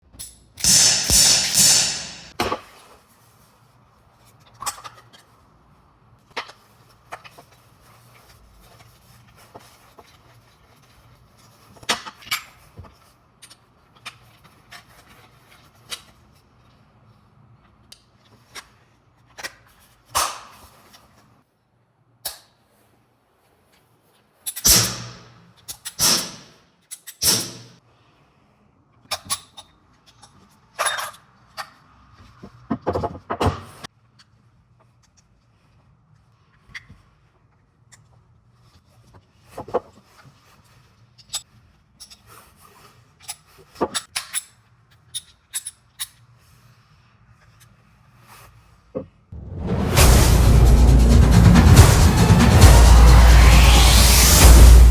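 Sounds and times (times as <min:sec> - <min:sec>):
sharp clacks: 0:00.6 - 0:02.3.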